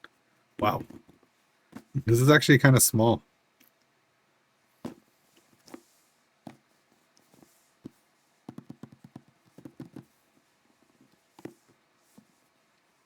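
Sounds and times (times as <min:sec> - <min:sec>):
quick taps: 0:07.8 - 0:10.1.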